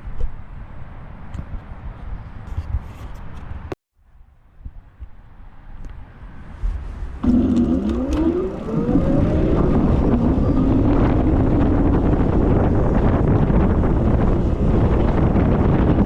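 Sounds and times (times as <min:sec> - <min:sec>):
wind rumbling on microphone: 0:04.5 - 0:16.0
electric motor whining: 0:07.2 - 0:13.8.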